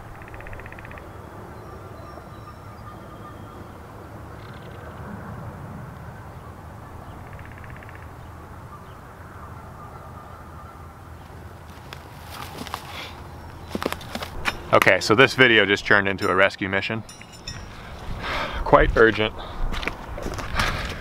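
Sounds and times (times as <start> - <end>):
raspy pulsing bird calls: 0.0 - 15.2
steady low rumble: 3.8 - 9.8.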